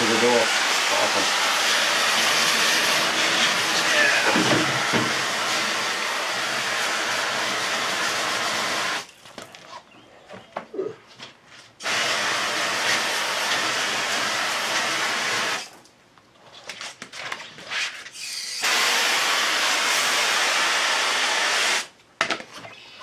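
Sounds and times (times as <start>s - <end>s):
spray hissing: 0.0s - 9.0s.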